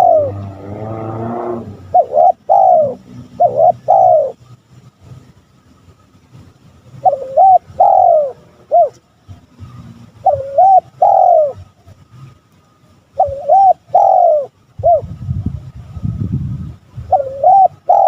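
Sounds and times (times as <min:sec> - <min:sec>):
dove cooing: 0:00.0 - 0:04.4, 0:07.0 - 0:09.0, 0:10.2 - 0:11.7, 0:13.2 - 0:15.1, 0:17.0 - 0:18.0.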